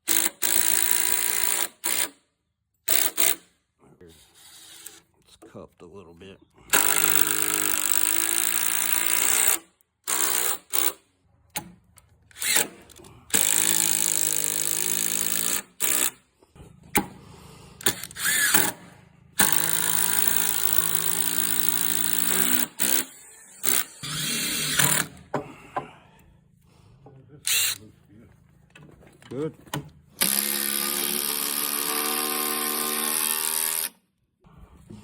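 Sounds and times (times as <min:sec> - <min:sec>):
impact driver driving screws: 0:00.1 - 0:02.2, 0:02.9 - 0:03.5, 0:06.7 - 0:11.7, 0:12.3 - 0:16.2, 0:17.8 - 0:25.4, 0:27.5 - 0:27.8, 0:30.2 - 0:34.0.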